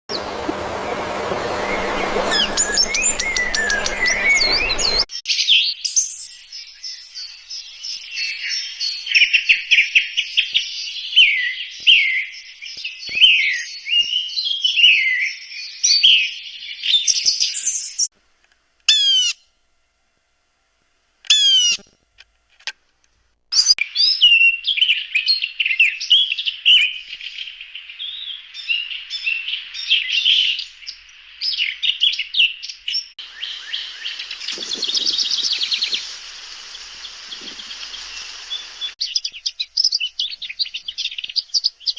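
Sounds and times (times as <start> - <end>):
small birds chirping: 0.1 - 18.1, 23.5 - 41.9
hiss: 33.2 - 39.0.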